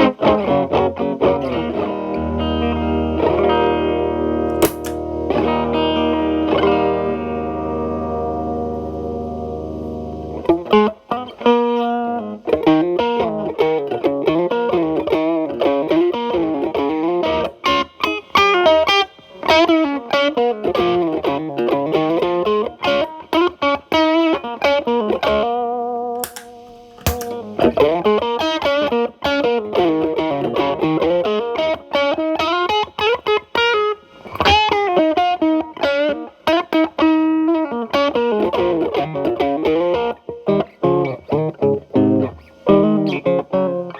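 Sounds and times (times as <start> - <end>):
electric guitar blues lead: 0.0 - 43.9.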